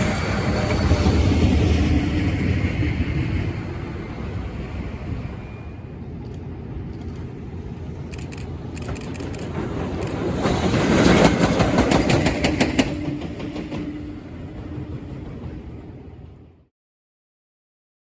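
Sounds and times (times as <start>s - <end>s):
freight train rumbling past: 0.0s - 16.7s
wheels clicking over rail joints: 8.2s - 13.9s.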